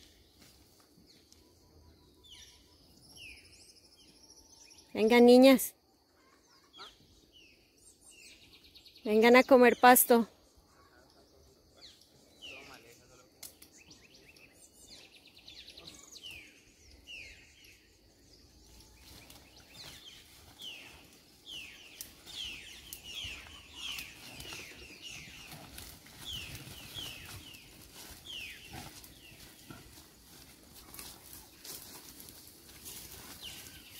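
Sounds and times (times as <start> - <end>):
birds chirping downward: 13.7 - 33.9.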